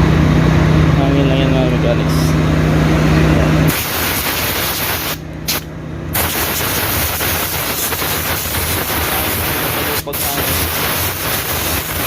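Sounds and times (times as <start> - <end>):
compressed air blow gun hissing: 3.7 - 12.0.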